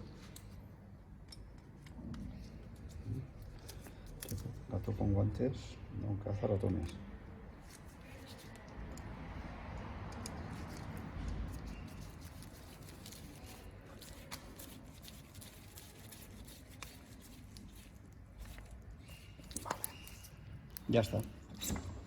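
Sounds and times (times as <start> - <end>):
hands rustling and clicking small parts: 7.6 - 9.1, 10.1 - 21.7.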